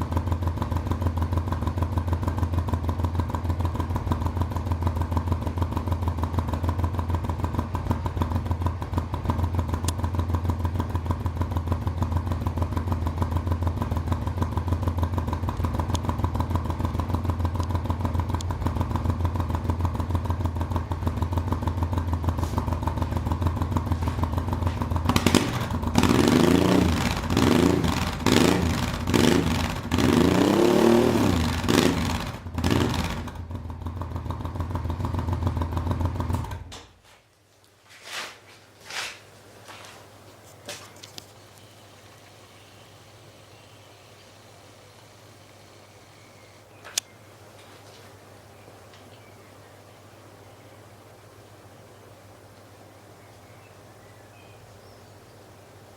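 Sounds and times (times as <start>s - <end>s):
motorcycle engine idling and revving: 0.0s - 37.0s.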